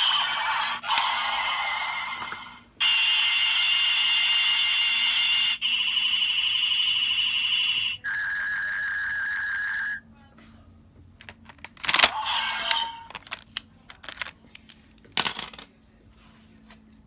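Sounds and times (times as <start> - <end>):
toy speaker synthetic tones: 0.0 - 10.0.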